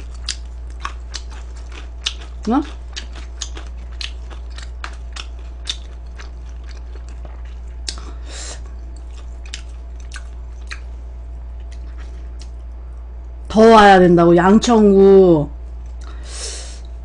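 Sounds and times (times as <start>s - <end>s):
person chewing crunchy food: 0.0s - 12.8s.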